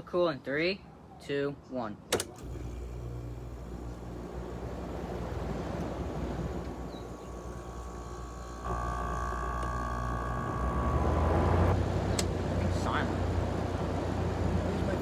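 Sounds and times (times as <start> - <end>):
air conditioner running: 2.2 - 15.0
compressor humming and whining: 2.2 - 15.0.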